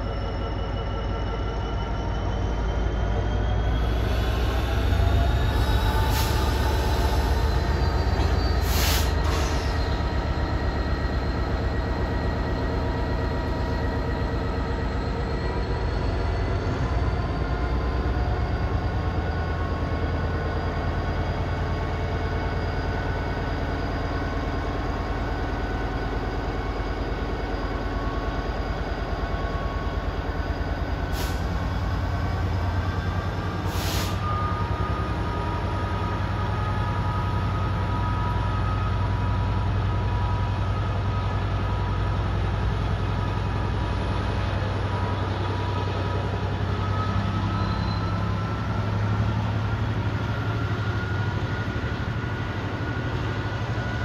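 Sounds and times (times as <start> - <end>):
high-pitched wheel squeal: 0.0 - 24.0, 46.7 - 49.0.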